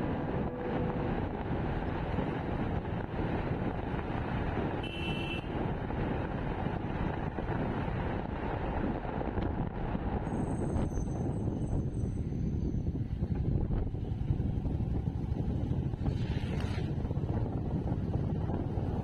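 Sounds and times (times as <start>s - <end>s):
brief high-pitched tone: 0.0s - 1.4s
wind and road noise: 0.0s - 19.0s.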